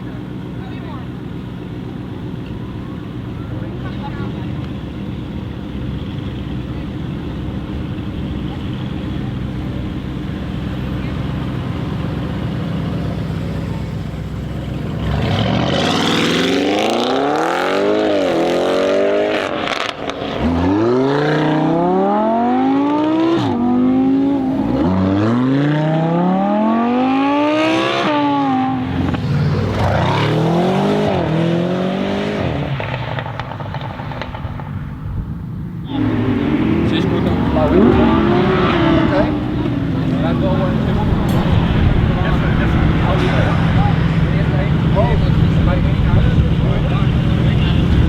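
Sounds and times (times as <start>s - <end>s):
car engine revving: 0.0s - 48.0s
exhaust crackles: 27.4s - 48.0s.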